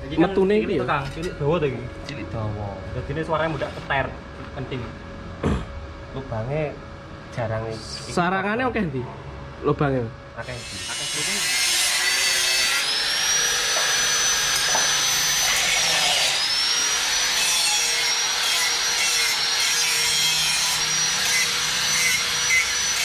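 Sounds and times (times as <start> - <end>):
power tool whining and grinding: 10.4 - 23.0.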